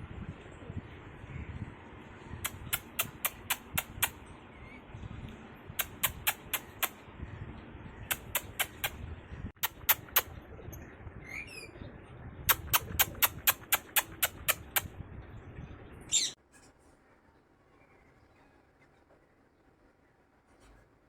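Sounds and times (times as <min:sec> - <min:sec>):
faint low hum: 0:00.0 - 0:21.0
sharp clicking taps: 0:02.4 - 0:04.2, 0:05.8 - 0:07.0, 0:08.1 - 0:09.0.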